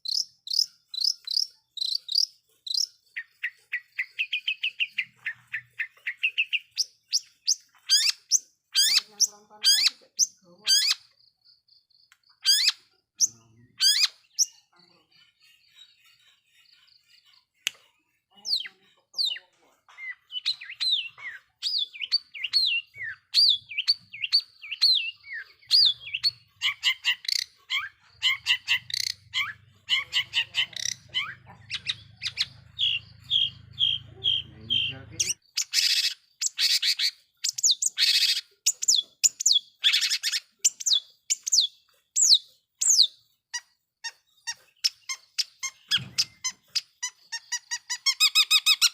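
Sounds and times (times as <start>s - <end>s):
harsh rasping bird calls: 0.0s - 48.9s
bird singing chirps and whistles: 20.0s - 43.2s.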